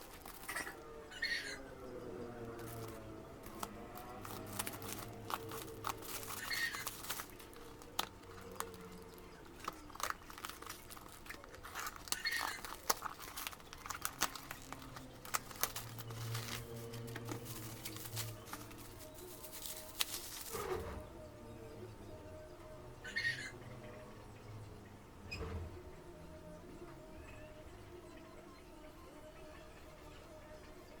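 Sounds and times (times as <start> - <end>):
plastic wrap crinkling and tearing: 0.0 - 1.6, 2.4 - 20.8
cardboard and plastic clicks: 2.6 - 20.6.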